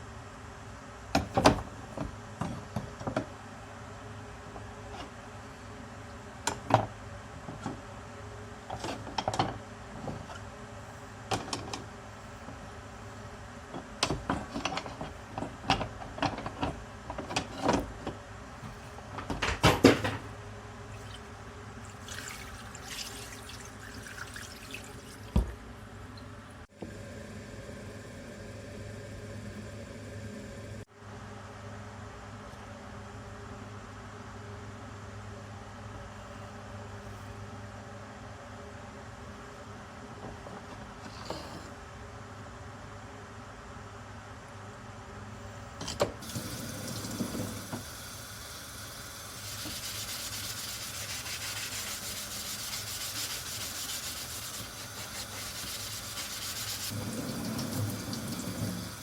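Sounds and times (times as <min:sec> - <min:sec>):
water sounds: 0:20.9 - 0:26.4.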